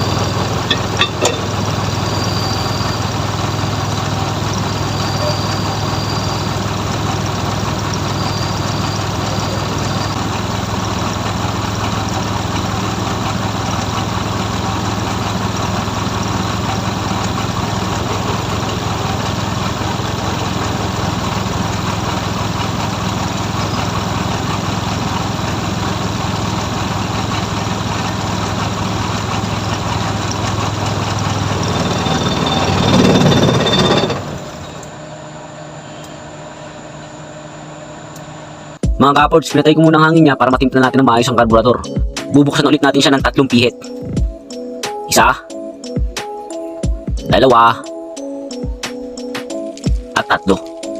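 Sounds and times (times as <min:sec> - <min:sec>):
car engine idling: 0:00.0 - 0:39.1.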